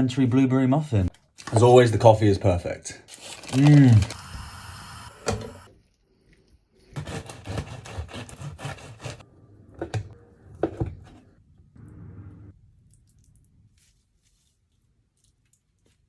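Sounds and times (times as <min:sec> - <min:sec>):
knife cutting bread: 0:06.9 - 0:09.2.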